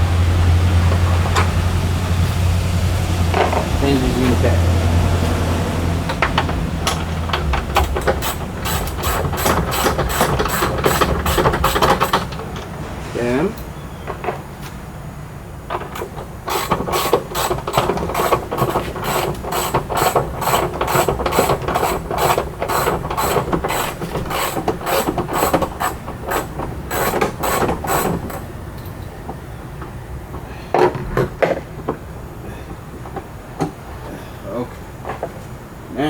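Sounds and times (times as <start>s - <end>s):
ratchet wrench clicking: 6.1s - 12.4s, 16.5s - 29.0s.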